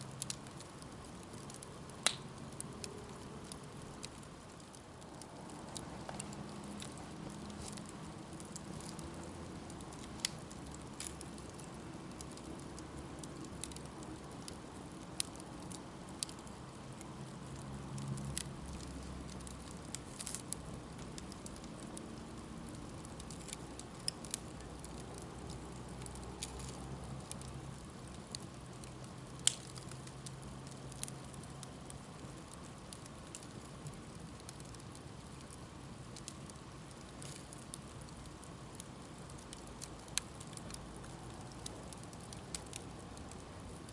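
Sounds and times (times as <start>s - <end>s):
campfire crackling and popping: 0.0s - 43.9s.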